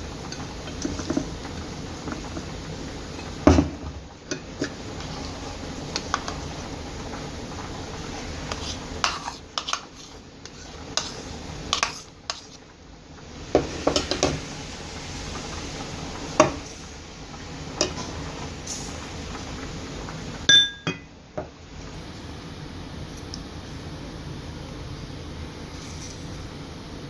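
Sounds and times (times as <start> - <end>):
kitchen utensils clinking against dishes: 20.5 - 21.1.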